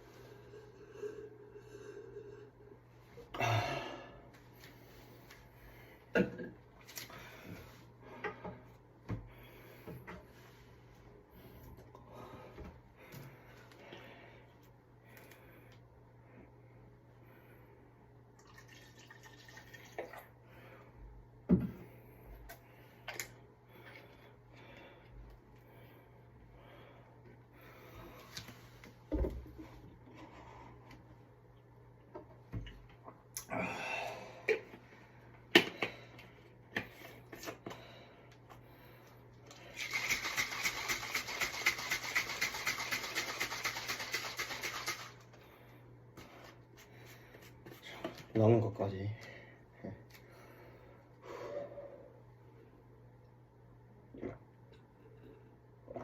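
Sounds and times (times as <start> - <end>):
liquid pouring: 18.4 - 20.3
drink shaker rattling: 39.8 - 45.2.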